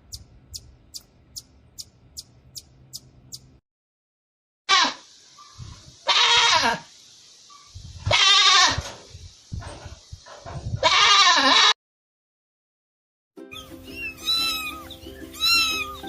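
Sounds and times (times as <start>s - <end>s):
sheep bleating: 10.8s - 11.8s, 14.2s - 16.0s.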